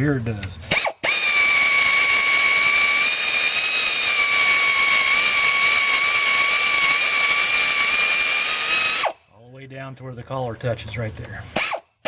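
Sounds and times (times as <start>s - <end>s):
power drill whining under load: 0.7s - 9.2s, 11.6s - 11.8s.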